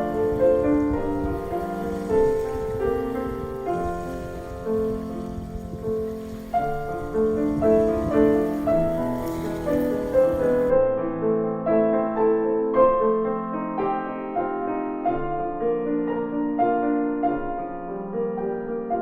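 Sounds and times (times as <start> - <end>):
faint hiss: 0.0 - 12.2
piano music: 0.0 - 19.0.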